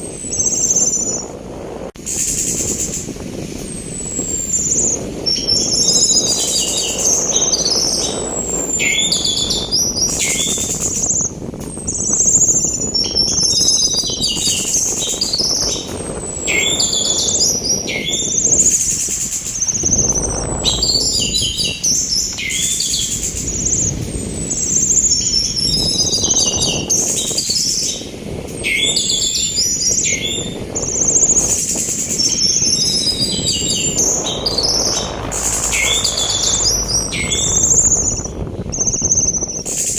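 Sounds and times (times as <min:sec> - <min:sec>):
rush of sea wind: 0:00.0 - 0:39.9
thrush singing: 0:31.4 - 0:39.4.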